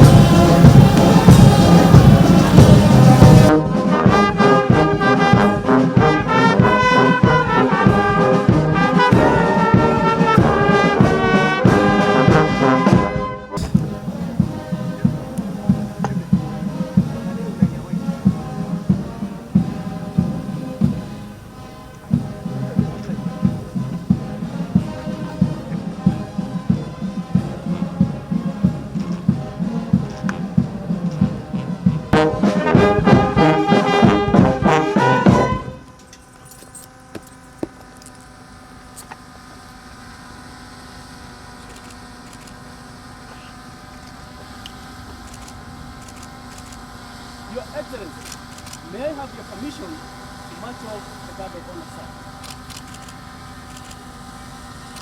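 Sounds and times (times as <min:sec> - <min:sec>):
bass drum beating: 0:00.0 - 0:03.5, 0:13.6 - 0:35.6
brass band playing: 0:00.0 - 0:36.0.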